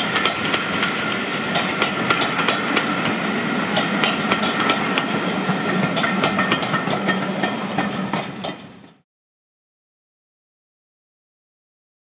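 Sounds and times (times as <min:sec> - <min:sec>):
train rumble: 0:00.0 - 0:09.0
train wheels clicking over rail joints: 0:00.0 - 0:09.0.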